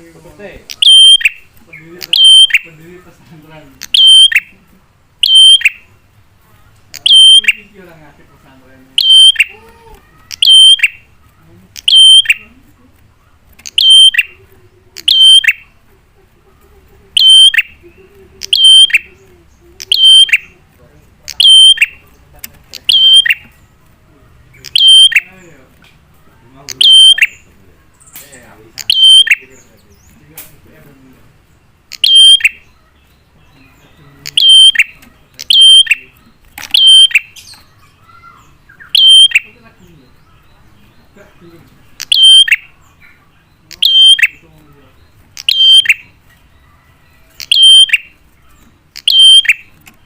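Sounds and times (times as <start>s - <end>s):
bird calling sharply: 0.7s - 2.8s, 3.8s - 4.6s, 5.2s - 6.0s, 6.9s - 7.7s, 9.0s - 12.6s, 13.2s - 14.4s, 15.0s - 15.8s, 17.2s - 19.2s, 19.8s - 20.6s, 21.3s - 22.1s, 22.7s - 23.6s, 24.5s - 25.5s, 26.2s - 30.1s, 31.9s - 41.2s, 41.9s - 46.2s, 47.3s - 49.9s.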